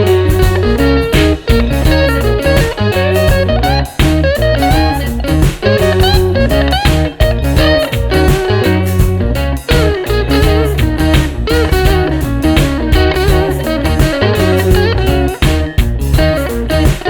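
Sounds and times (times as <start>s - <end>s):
guitar-led instrumental music: 0.0s - 17.0s.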